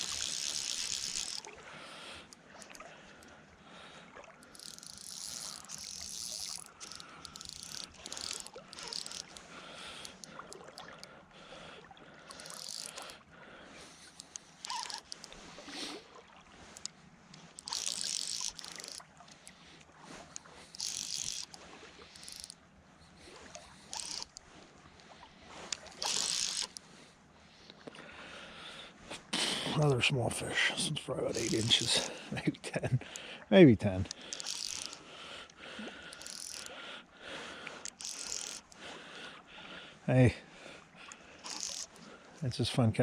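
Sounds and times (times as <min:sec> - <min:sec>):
fly reel ratchet clicking: 0:00.0 - 0:01.6, 0:02.2 - 0:03.3, 0:04.4 - 0:11.1, 0:12.2 - 0:13.2, 0:13.9 - 0:16.0, 0:16.7 - 0:19.6, 0:20.2 - 0:24.5, 0:25.7 - 0:26.8, 0:31.3 - 0:32.2, 0:34.0 - 0:36.8, 0:37.6 - 0:38.9, 0:41.1 - 0:42.1.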